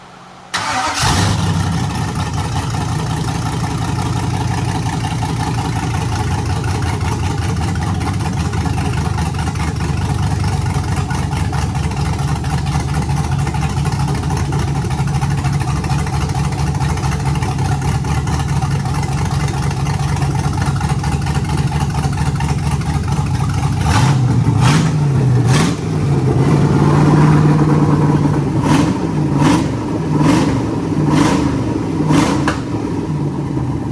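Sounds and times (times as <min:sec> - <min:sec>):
car engine starting: 0:00.0 - 0:33.9
engine idling and revving: 0:00.0 - 0:33.9.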